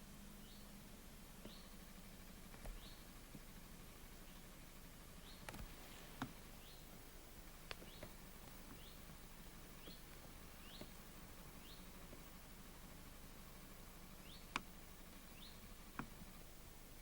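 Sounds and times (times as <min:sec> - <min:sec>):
soft clicks: 0:14.5 - 0:14.7.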